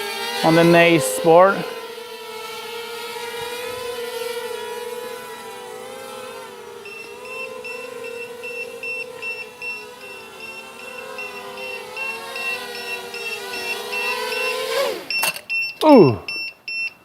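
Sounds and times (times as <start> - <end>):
quadcopter motors whining: 0.0 - 16.5
rapid electronic beeping: 6.9 - 15.8.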